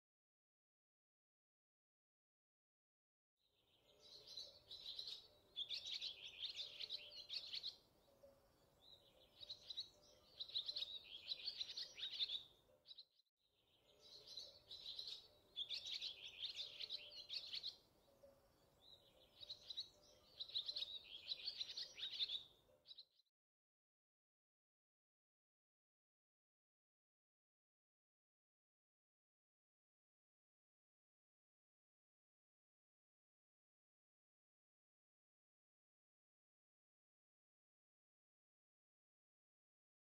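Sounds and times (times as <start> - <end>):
birds chirping and trilling: 3.6 - 23.2.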